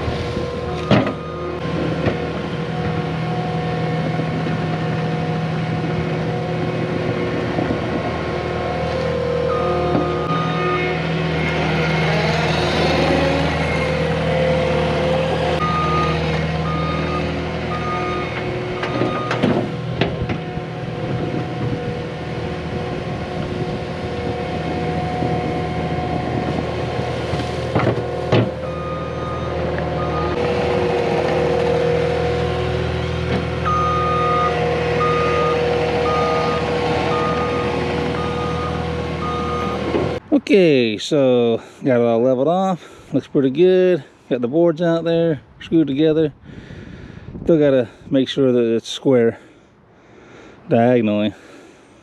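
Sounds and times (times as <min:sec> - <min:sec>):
diesel engine running: 0:00.0 - 0:45.3
backup alarm beeping: 0:00.8 - 0:01.6, 0:09.4 - 0:11.6, 0:15.6 - 0:18.4, 0:19.0 - 0:19.4, 0:28.6 - 0:30.4, 0:33.6 - 0:39.9.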